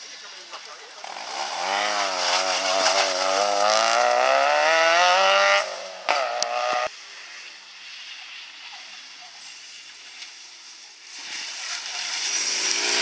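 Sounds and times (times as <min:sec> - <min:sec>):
car engine revving: 0:00.9 - 0:06.9, 0:11.4 - 0:13.0.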